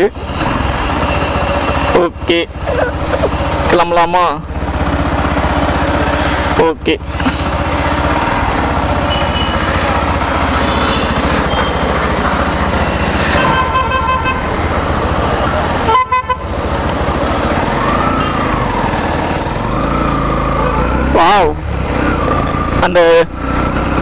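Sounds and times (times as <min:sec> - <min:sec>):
motorcycle engine running: 0:00.0 - 0:24.0
vehicle horn tooting: 0:09.0 - 0:09.7, 0:10.5 - 0:11.8, 0:13.3 - 0:14.5, 0:15.8 - 0:16.6.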